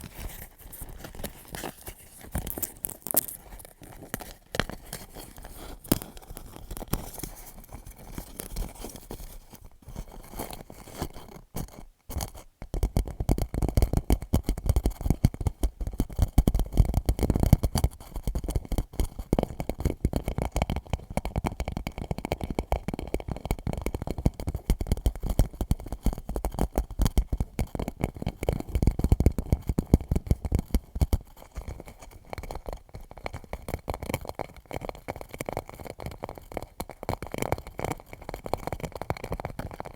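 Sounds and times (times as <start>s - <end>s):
fingertips tapping plastic pouch: 0.0s - 9.3s.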